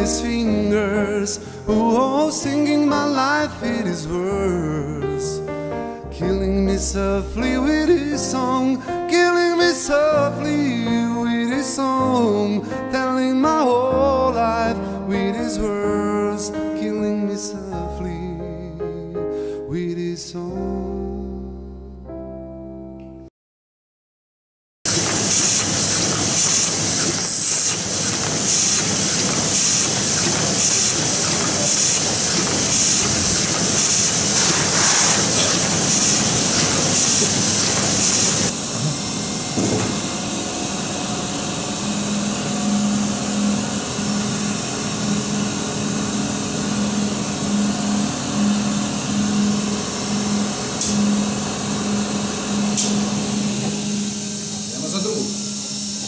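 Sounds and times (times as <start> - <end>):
machinery hum with pulsing tone: 24.9 - 56.0
print shop machinery hissing: 24.9 - 56.0.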